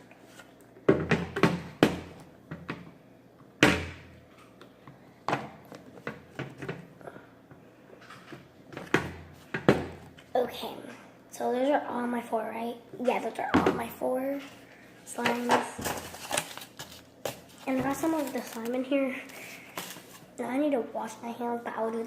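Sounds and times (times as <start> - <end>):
plastic containers knocking: 8.8 - 10.0.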